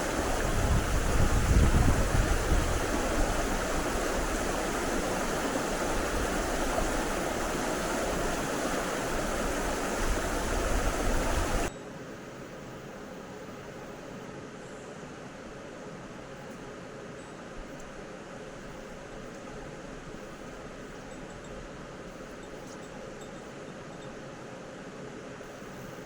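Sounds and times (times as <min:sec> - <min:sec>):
even hiss: 0:00.0 - 0:11.7
mountain stream rushing: 0:00.0 - 0:11.7
wind rumbling on microphone: 0:00.0 - 0:11.7.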